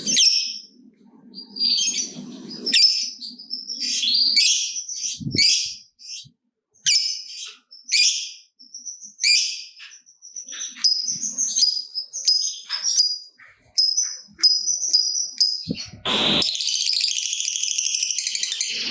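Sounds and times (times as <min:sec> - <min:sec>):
lovebird chirping and squawking: 0:00.0 - 0:00.6, 0:01.4 - 0:08.4, 0:09.2 - 0:18.9
loud burst of noise: 0:15.9 - 0:16.5.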